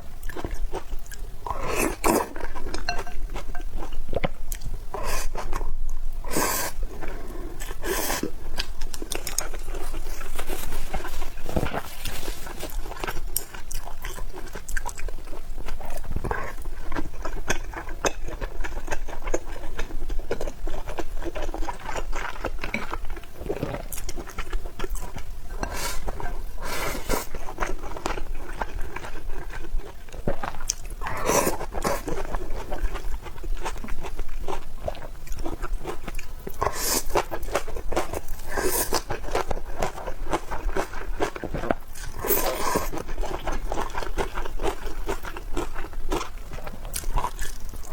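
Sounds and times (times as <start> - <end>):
crunchy chewing and biting: 27.1 - 47.9.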